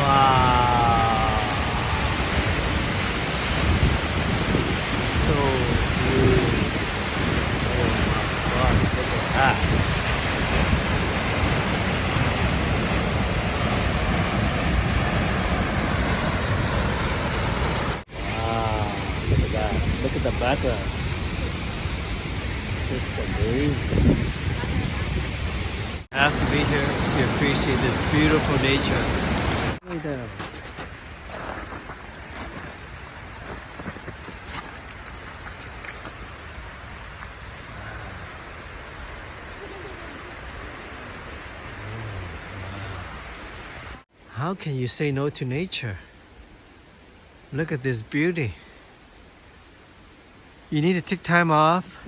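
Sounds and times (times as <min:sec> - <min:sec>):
waterfall rushing: 0:00.0 - 0:30.4, 0:33.0 - 0:44.1.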